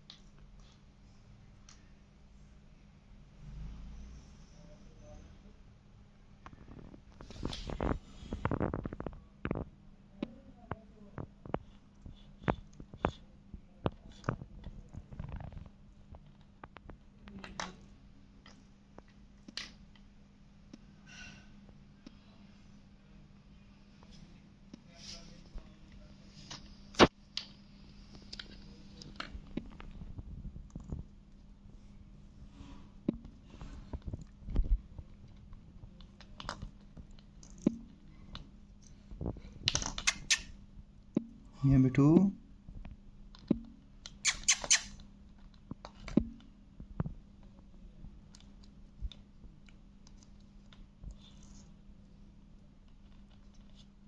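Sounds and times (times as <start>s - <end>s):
parrot clicks and rustles: 33.1s - 40.5s, 42.8s - 47.6s.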